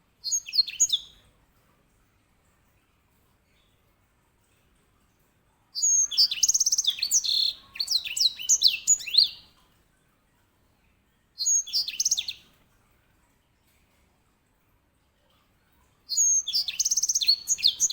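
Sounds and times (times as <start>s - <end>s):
finch singing: 0.2s - 1.2s, 5.8s - 9.5s, 11.4s - 12.4s, 16.1s - 17.9s.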